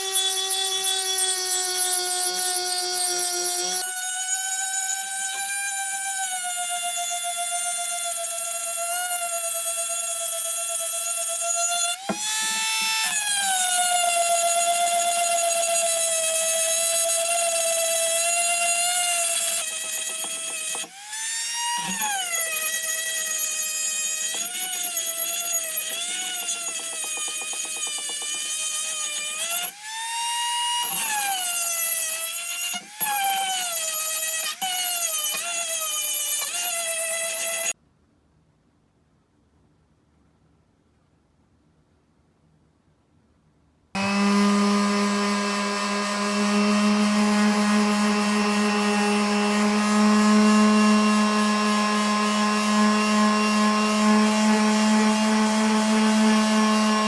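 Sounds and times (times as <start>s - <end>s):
small motor whining: 44.0s - 57.0s.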